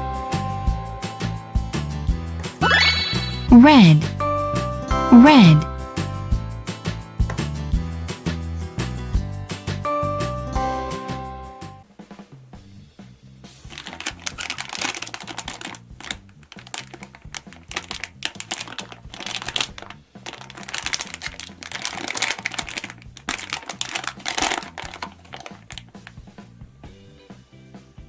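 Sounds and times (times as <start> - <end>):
crinkling handling noises: 13.7 - 26.3.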